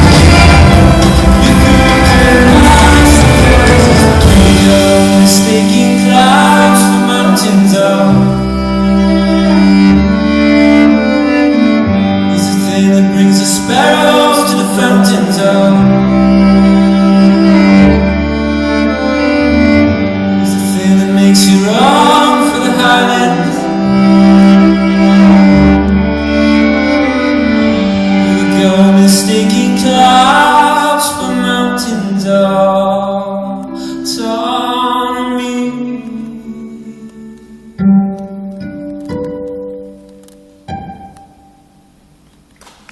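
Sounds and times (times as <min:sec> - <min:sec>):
bowed violin with sliding pitch: 0:00.0 - 0:32.9.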